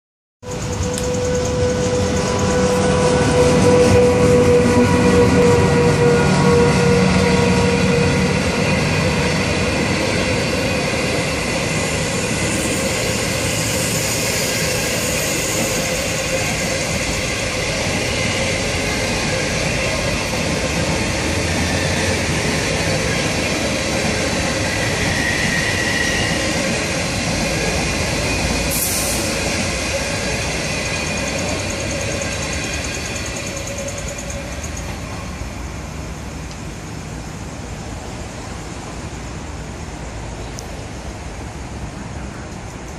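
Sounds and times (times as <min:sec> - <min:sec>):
train wheels rumbling on track: 0:00.4 - 0:42.9
brief hiss: 0:28.7 - 0:29.4.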